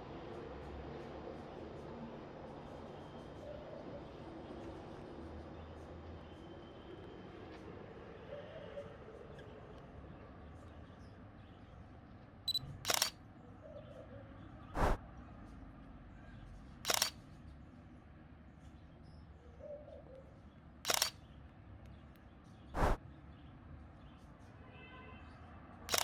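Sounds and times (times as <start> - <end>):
camera shutter clicks: 12.5 - 13.2, 16.9 - 17.2, 20.9 - 21.1.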